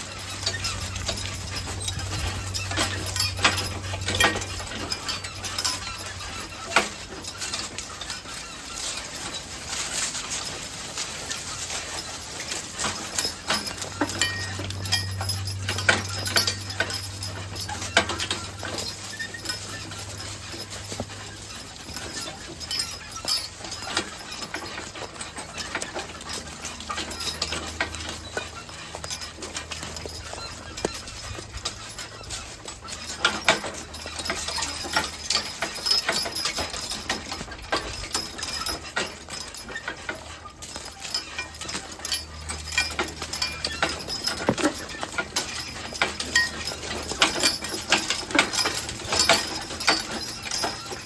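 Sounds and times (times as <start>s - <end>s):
harness hardware clinking and squeaking: 0.0s - 51.0s
hooves clopping: 0.0s - 51.0s
low steady hum: 13.2s - 23.1s
wagon knocks: 29.0s - 51.0s.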